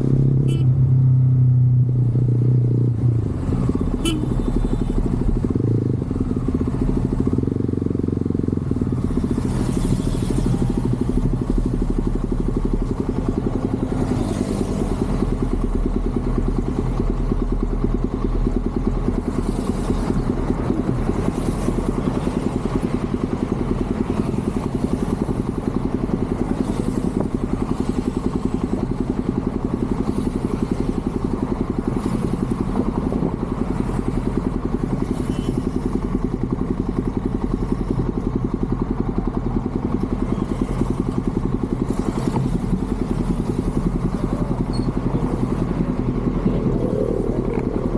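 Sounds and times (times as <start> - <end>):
motorcycle engine running steadily: 0.0 - 47.9.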